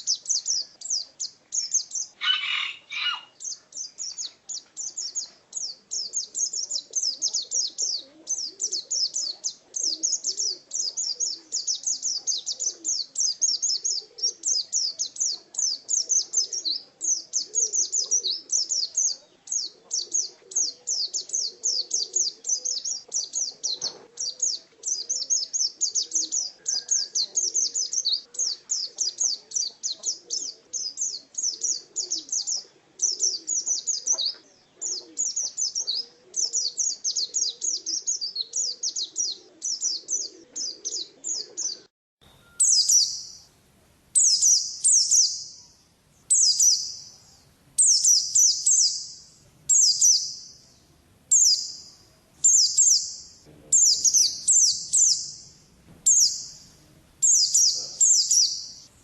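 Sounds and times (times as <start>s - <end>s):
bird singing high chirps and trills: 0.0s - 59.0s.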